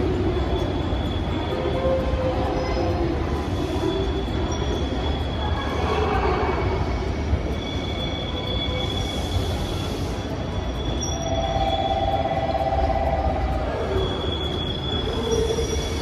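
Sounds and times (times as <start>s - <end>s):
high wheel squeal: 0.0s - 16.0s
train rumbling at low speed: 0.0s - 16.0s
low whine: 7.3s - 16.0s.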